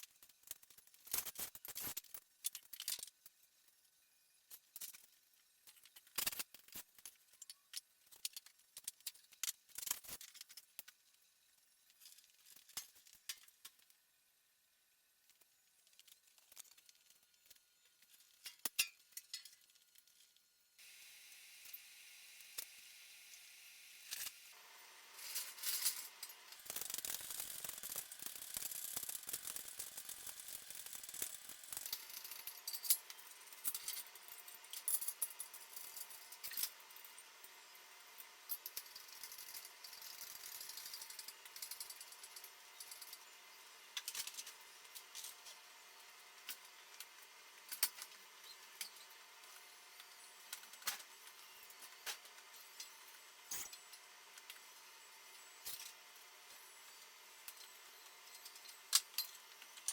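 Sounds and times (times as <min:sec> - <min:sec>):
metal tools clinking and rattling: 0:15.9 - 0:20.2, 0:25.2 - 0:36.7
steady hiss: 0:20.8 - 0:24.6.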